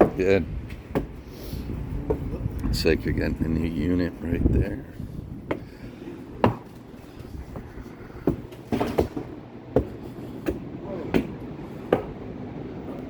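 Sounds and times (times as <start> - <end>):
footsteps on wooden deck: 4.9 - 12.2.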